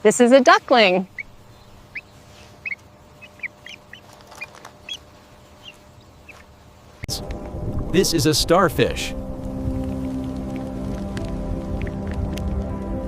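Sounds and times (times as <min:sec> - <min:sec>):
duckling peeping: 0:00.8 - 0:06.7.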